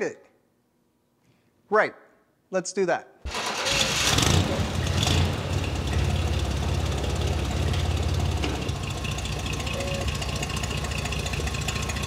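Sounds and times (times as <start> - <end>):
engine idling: 3.3 - 12.0.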